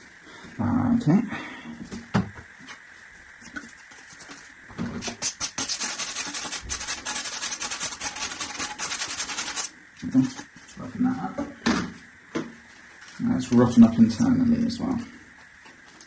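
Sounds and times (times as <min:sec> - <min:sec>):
sandpaper rasping on plastic pipe: 0:05.0 - 0:09.7.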